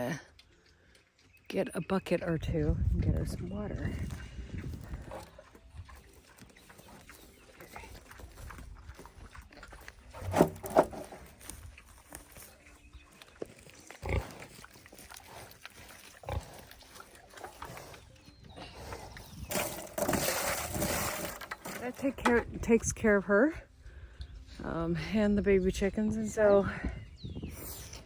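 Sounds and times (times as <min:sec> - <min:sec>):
pig grunting: 0:14.0 - 0:21.9.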